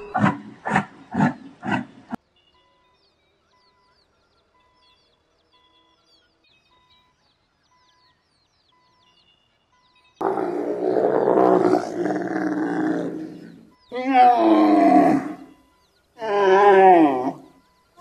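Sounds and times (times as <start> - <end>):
animal calls: 0.0 - 2.2, 10.2 - 15.6, 16.2 - 18.0.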